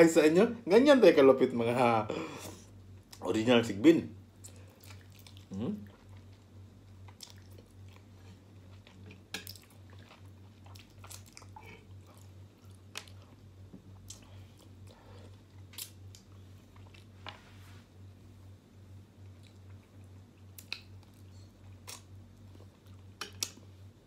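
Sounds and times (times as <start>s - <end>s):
low steady hum: 0.0s - 24.0s
person chewing food: 4.4s - 17.2s, 19.2s - 23.8s
wet mouth smacks and clicks: 20.6s - 20.9s, 23.2s - 23.6s.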